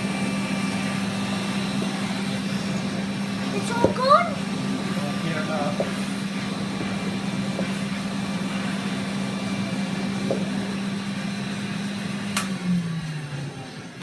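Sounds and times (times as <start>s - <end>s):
vacuum cleaner motor humming: 0.0s - 14.0s
switch click: 12.4s - 12.6s.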